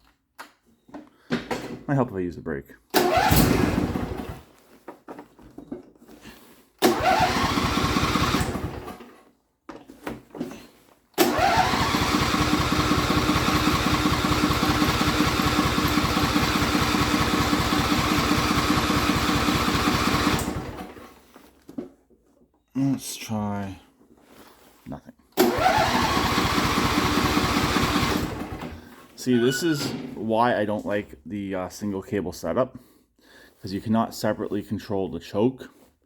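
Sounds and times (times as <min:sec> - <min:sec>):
electric starter cranking engine: 0:02.9 - 0:04.5, 0:06.8 - 0:09.2, 0:11.2 - 0:21.3, 0:25.4 - 0:29.8.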